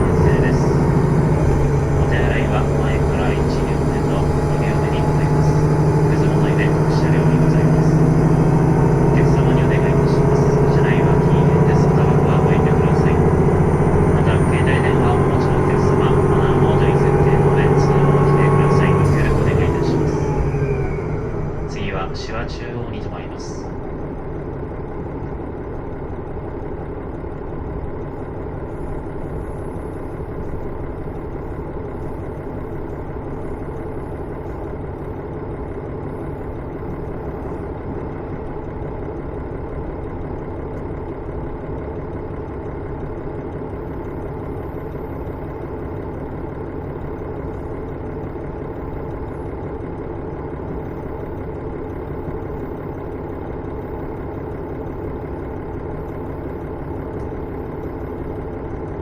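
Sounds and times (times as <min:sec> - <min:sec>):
diesel railcar engine rumble: 0:00.0 - 0:59.0.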